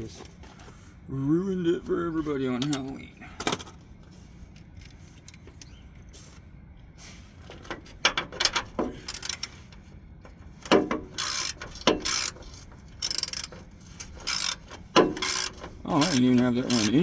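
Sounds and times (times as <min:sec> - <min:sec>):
ratchet wrench clicking: 0:08.1 - 0:09.6, 0:10.6 - 0:17.0.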